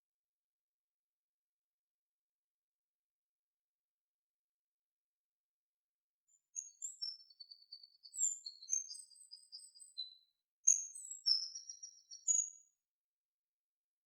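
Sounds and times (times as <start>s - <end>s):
songbird singing whistled phrases: 6.6s - 12.7s.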